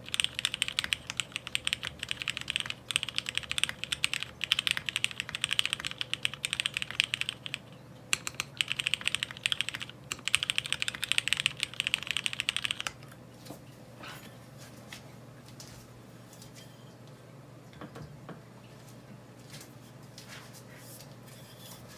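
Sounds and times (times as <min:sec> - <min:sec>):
fast typing on mechanical keyboard: 0:00.0 - 0:13.0.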